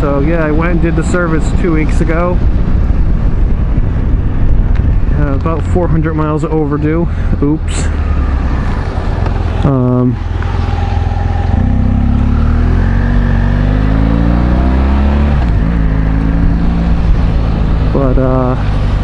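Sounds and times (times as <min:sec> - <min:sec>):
motorcycle engine accelerating: 0:07.8 - 0:19.0.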